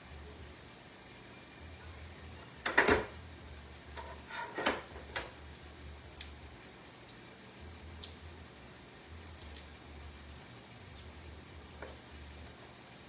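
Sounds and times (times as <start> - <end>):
utensils and dishes clattering: 4.0 - 5.3.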